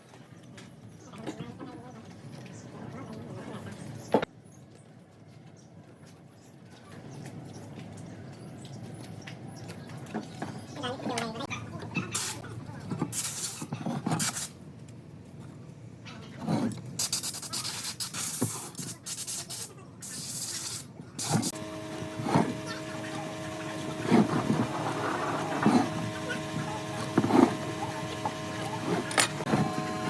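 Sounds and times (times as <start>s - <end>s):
power tool motor humming: 21.2s - 30.0s
rasping on wood: 21.3s - 29.8s.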